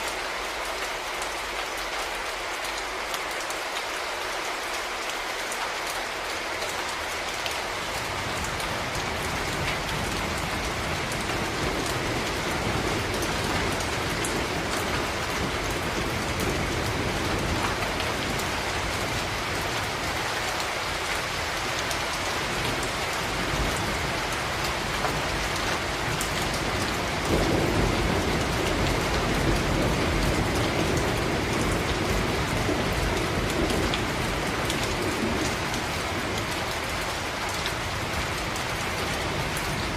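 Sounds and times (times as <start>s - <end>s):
rain falling on a surface: 0.0s - 39.9s
thunder rumbling: 8.5s - 20.1s, 22.4s - 39.9s.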